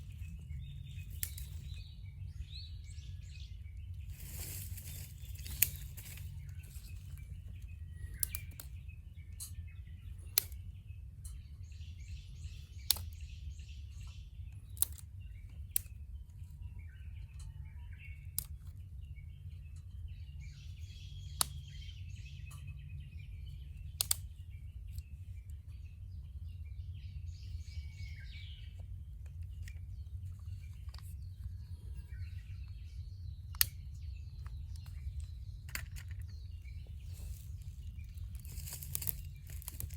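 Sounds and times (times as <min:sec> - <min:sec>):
birds chirping: 0:00.0 - 0:39.9
steady low rumble: 0:00.0 - 0:39.9
wood fire crackling and popping: 0:24.0 - 0:24.2, 0:38.4 - 0:39.9.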